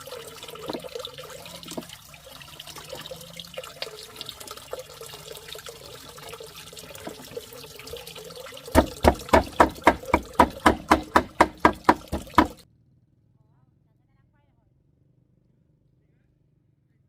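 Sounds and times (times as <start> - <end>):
water running and splashing: 0.0 - 12.6
rapid sharp knocks: 8.7 - 12.6.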